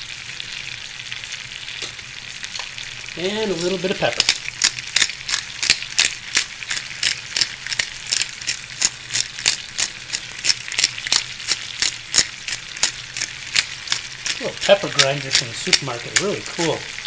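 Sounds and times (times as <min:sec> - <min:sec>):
chicken sizzling in a skillet: 0:00.0 - 0:17.0.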